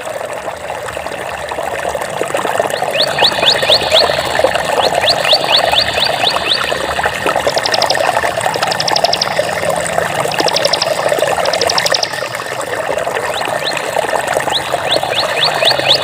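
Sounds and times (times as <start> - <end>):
flowing water: 0.0 - 16.0
high rising bird chirps: 2.8 - 9.8, 10.4 - 12.6, 14.5 - 16.0.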